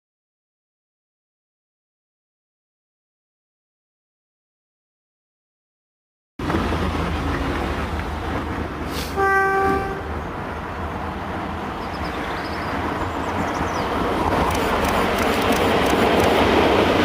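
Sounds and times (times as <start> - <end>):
diesel locomotive engine rumble: 6.4 - 17.0
train horn: 9.0 - 10.2.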